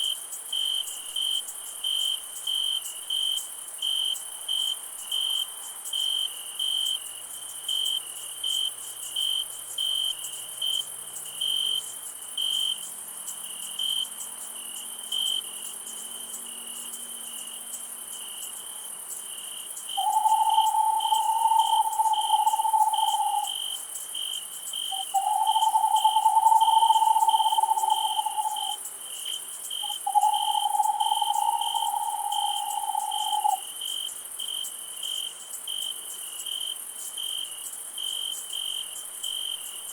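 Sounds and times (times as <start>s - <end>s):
crickets chirping: 0.0s - 39.9s
insect hiss: 0.0s - 39.9s
long steady mid-pitched tones: 20.0s - 23.6s, 24.9s - 28.8s, 29.8s - 33.6s.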